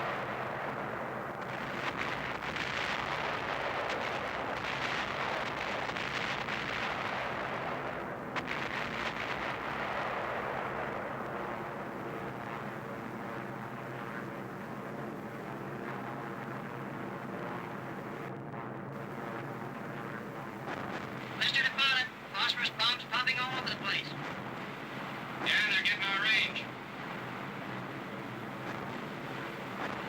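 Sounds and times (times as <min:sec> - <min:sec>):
rumbling crackling explosions: 0:00.0 - 0:11.5, 0:20.4 - 0:30.0
aircraft engines droning: 0:21.2 - 0:29.8.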